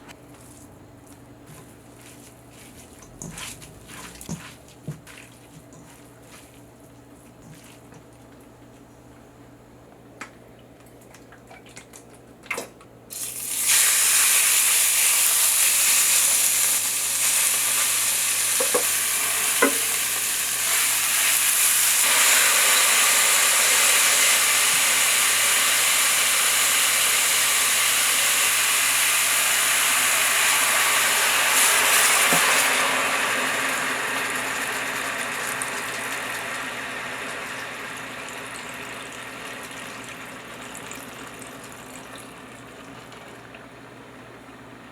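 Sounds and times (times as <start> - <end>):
greens sizzling in an oiled pan: 13.1 - 39.2.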